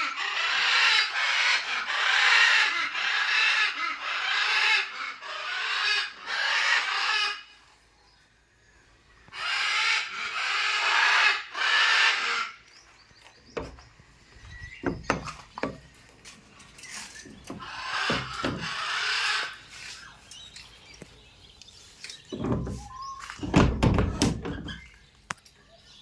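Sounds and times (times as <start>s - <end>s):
sharp knocks and taps: 14.8s - 15.9s.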